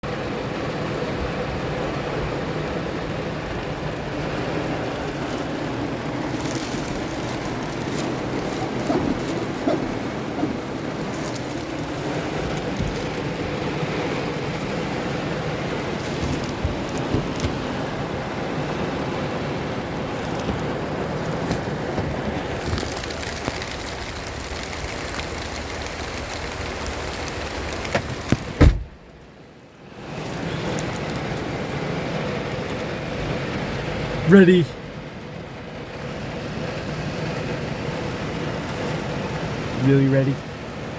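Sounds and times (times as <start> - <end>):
rain on a car hissing: 0.0 - 40.9
raindrop ticks: 3.6 - 18.0, 19.7 - 28.6, 30.6 - 32.9
car door clicks: 7.4 - 18.0, 27.9 - 29.0
car door thumping shut: 7.7 - 14.0, 14.6 - 18.0, 27.9 - 29.0.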